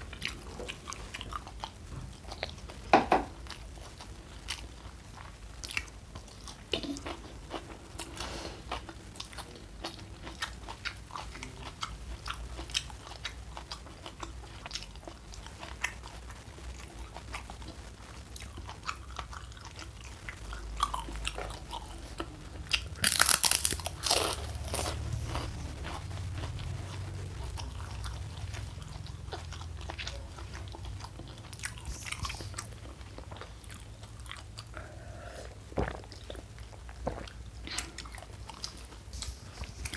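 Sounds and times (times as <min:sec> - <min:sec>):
chewing with small crunches: 0:00.0 - 0:39.9
crisp crunching bite: 0:22.7 - 0:26.0.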